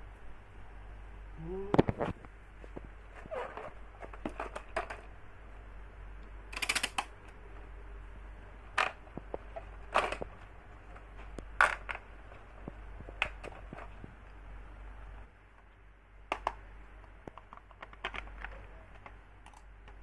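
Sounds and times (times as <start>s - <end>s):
steady low hum: 0.0s - 20.0s
plastic toy parts clicking: 6.5s - 7.1s, 16.3s - 16.6s, 17.2s - 20.0s.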